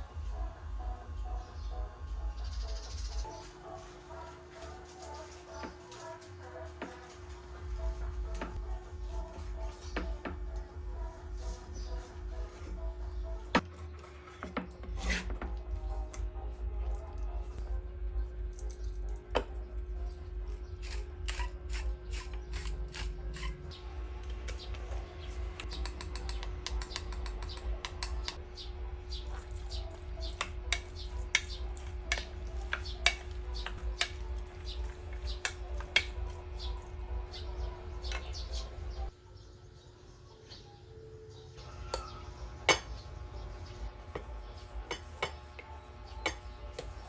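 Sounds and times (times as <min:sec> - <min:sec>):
steady low hum: 0:00.0 - 0:39.3, 0:41.6 - 0:47.0
utensils and dishes clinking: 0:18.5 - 0:28.4, 0:29.2 - 0:39.1, 0:44.1 - 0:47.0.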